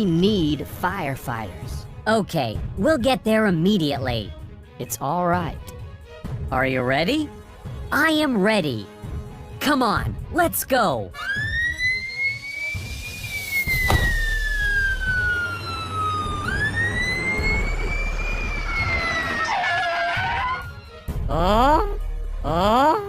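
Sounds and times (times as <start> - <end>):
cartoon siren wailing: 11.2 - 20.8.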